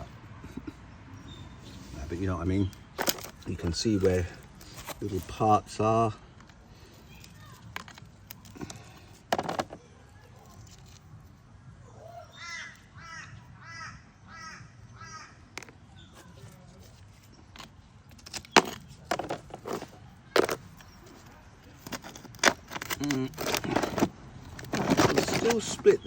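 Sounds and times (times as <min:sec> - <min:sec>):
bird calling: 0:11.8 - 0:16.4.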